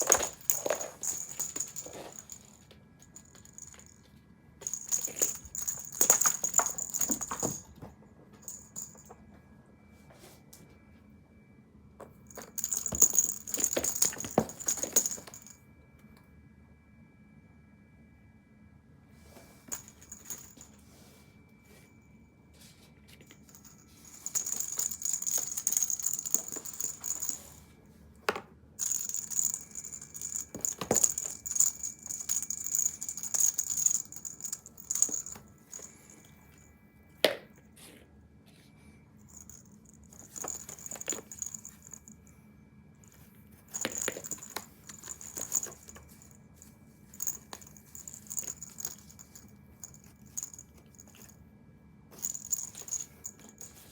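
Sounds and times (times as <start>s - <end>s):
cat toy jingling and rattling: 0.0s - 9.1s, 12.3s - 15.5s, 19.7s - 20.7s, 23.3s - 27.6s, 28.8s - 36.4s, 39.2s - 42.2s, 43.0s - 51.4s, 52.1s - 53.9s.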